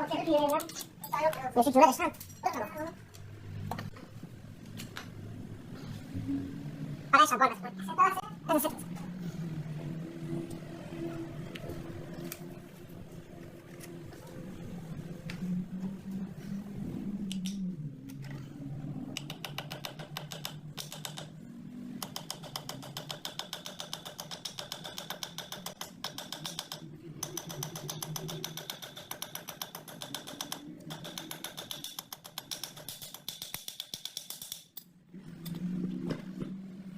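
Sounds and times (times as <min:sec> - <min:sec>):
low hum: 0:02.2 - 0:22.2
mechanism clicking fast: 0:22.0 - 0:35.6.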